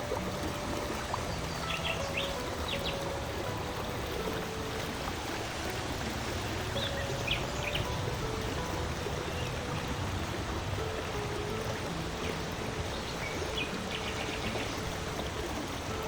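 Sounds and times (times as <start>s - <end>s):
soft held music tones: 0.0s - 16.0s
stream water flowing: 0.0s - 16.0s
bird chirps and trill: 1.2s - 3.1s, 6.7s - 8.2s.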